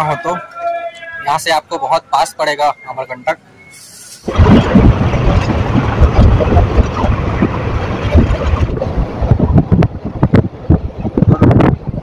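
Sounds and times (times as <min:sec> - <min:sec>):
wind rushing over microphone: 0:04.3 - 0:12.0.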